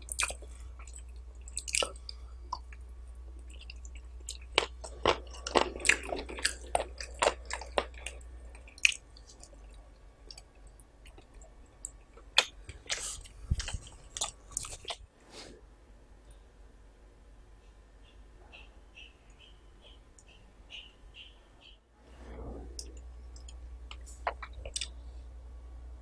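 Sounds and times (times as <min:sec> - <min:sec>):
person chewing and crunching food: 0:00.0 - 0:15.1, 0:22.8 - 0:25.2.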